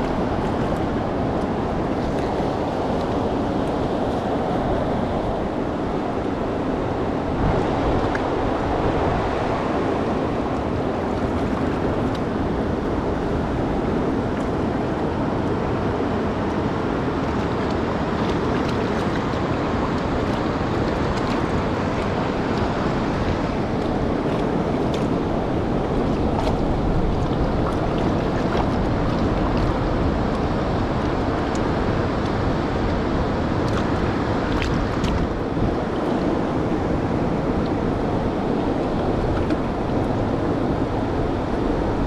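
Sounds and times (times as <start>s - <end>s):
river water rushing: 0.0s - 42.0s.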